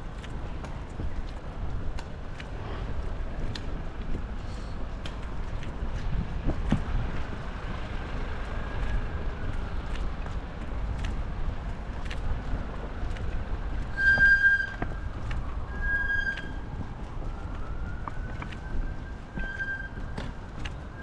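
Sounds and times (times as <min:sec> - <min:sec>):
low city traffic rumble: 0:00.0 - 0:21.0
siren wailing: 0:13.9 - 0:20.0.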